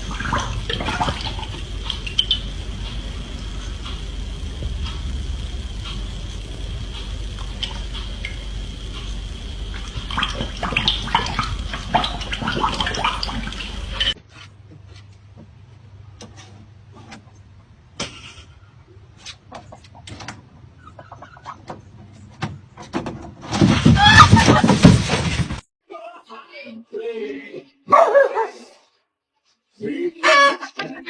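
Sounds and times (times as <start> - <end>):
bubbling: 0.0 - 14.2
underwater rushing water: 0.0 - 14.2.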